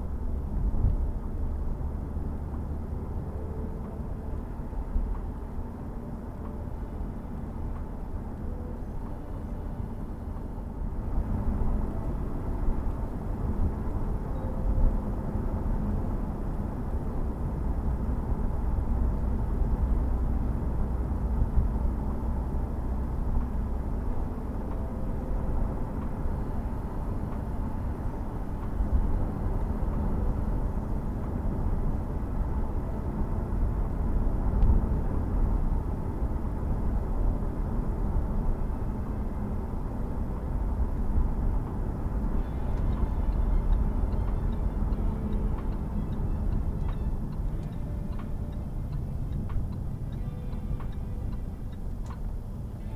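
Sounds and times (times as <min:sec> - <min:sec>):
car engine low rumble: 0:00.0 - 0:52.9.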